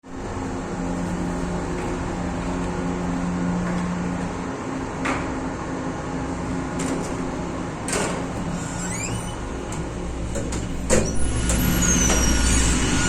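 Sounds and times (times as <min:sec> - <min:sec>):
engine-room machinery din: 0:09.4 - 0:13.0.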